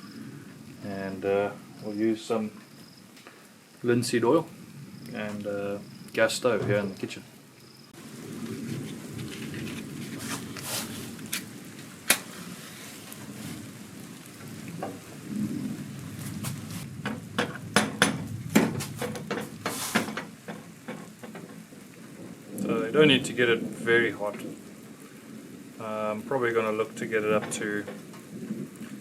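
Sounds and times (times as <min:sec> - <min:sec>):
rain falling: 0:00.0 - 0:29.0
low rumble of thunder: 0:08.0 - 0:29.0
sharp clicks and knocks: 0:17.0 - 0:22.7.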